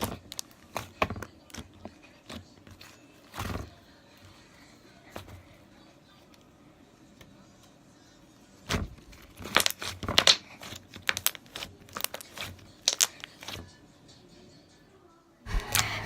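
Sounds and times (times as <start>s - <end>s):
slime squishing wet crackles: 8.6s - 13.6s.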